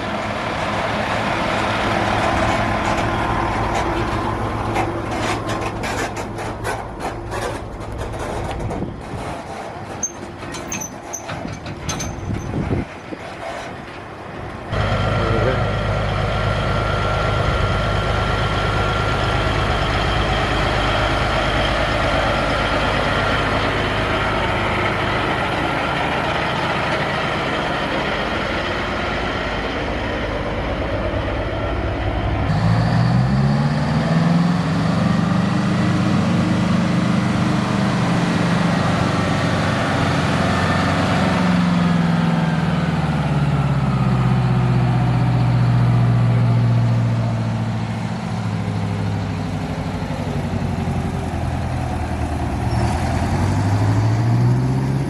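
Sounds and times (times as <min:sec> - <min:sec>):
diesel truck engines running: 0:00.0 - 0:55.0.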